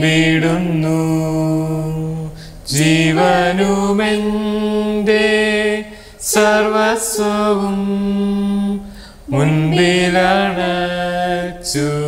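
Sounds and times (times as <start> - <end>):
person singing worship song: 0.0 - 12.0.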